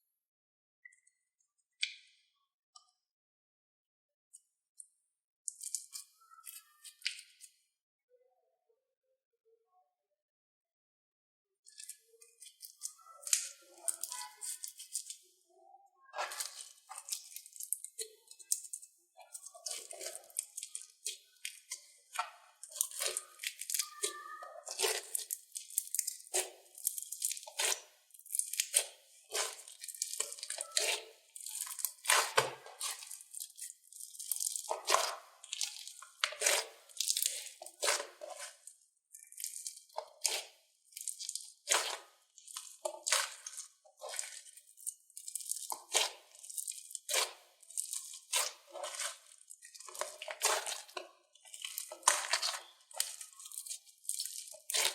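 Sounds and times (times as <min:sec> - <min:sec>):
slime squeezed crackling: 0:11.8 - 0:15.2, 0:16.0 - 0:54.9.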